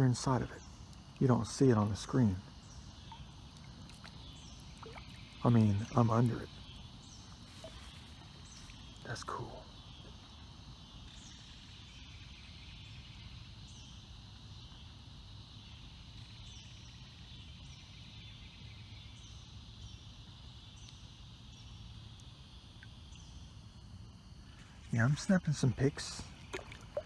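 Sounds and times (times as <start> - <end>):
steady high hiss: 19.6 - 27.0.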